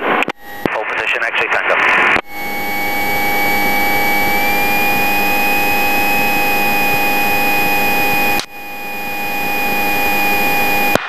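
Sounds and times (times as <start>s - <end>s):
aircraft engine and propeller droning: 2.2s - 11.0s.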